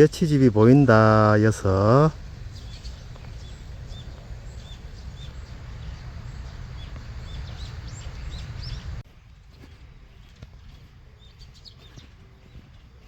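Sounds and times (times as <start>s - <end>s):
low rumble: 0.0s - 9.0s
small birds chirping: 0.0s - 13.0s.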